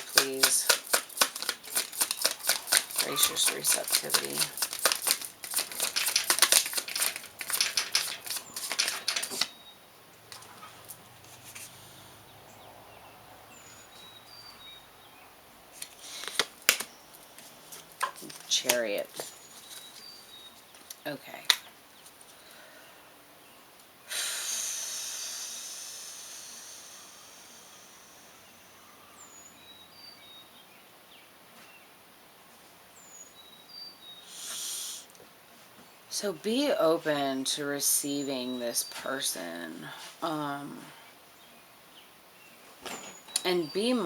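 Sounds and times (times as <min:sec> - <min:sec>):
card snaps: 0:00.0 - 0:09.5, 0:15.8 - 0:16.9
cards shuffling: 0:00.0 - 0:09.5, 0:15.8 - 0:20.2
faint songbird singing: 0:01.4 - 0:05.2, 0:06.7 - 0:23.9, 0:26.5 - 0:32.1, 0:32.8 - 0:44.0
room hiss: 0:24.0 - 0:29.6, 0:34.1 - 0:40.8.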